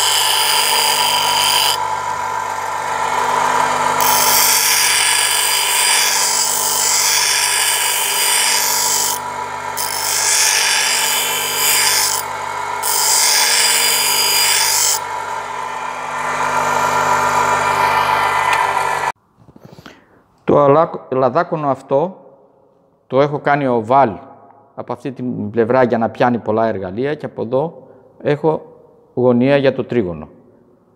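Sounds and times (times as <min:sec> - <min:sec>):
chisel grinding on wheel: 0:00.0 - 0:19.1
grinding wheel motor hum: 0:00.0 - 0:19.1.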